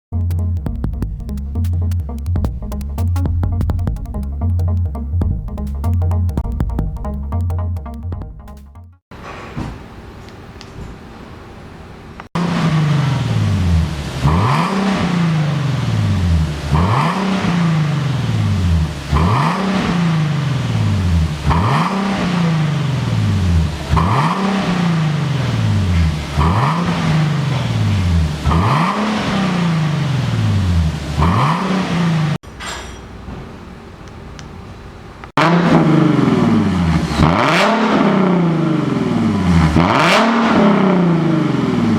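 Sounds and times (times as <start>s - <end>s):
car engine revving: 12.4s - 32.4s, 35.4s - 41.9s.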